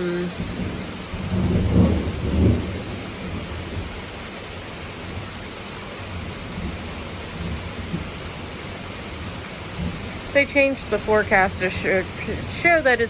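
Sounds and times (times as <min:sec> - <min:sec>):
steady rain: 0:00.0 - 0:13.0
deep thunder rumble: 0:00.3 - 0:04.3.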